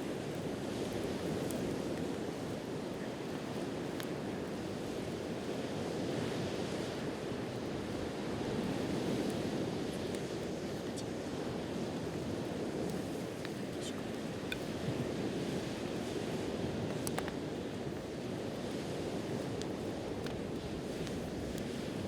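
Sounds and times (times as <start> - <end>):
campfire popping: 0.0 - 22.0
sea waves washing on shore: 0.0 - 22.0.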